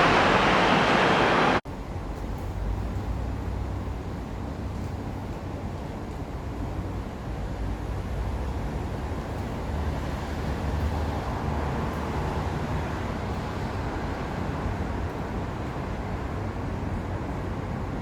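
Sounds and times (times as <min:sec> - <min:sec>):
vehicle rumble: 0:00.0 - 0:01.6.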